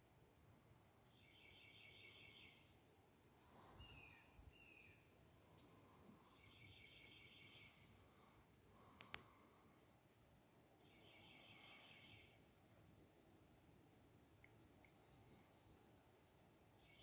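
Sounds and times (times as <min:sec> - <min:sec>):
faint songbird calls: 0:01.1 - 0:05.1, 0:05.8 - 0:09.4, 0:10.8 - 0:13.7.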